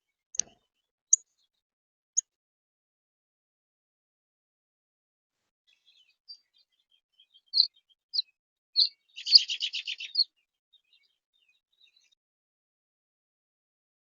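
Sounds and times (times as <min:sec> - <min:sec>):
songbird chirping and trilling: 0:00.1 - 0:01.6, 0:05.7 - 0:12.2.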